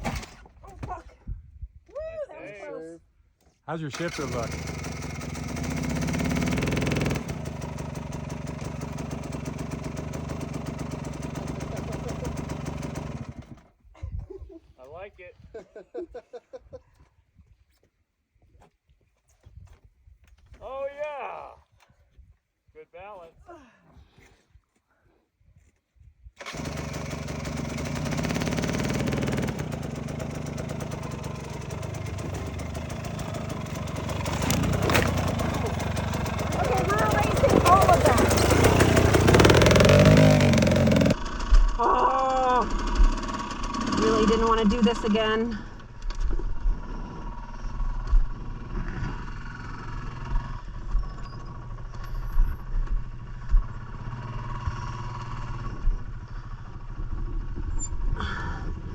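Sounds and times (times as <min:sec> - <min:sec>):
dirt bike engine revving: 0:03.9 - 0:13.7, 0:26.4 - 0:41.4, 0:42.6 - 0:45.1, 0:46.6 - 0:52.0, 0:52.9 - 0:57.5.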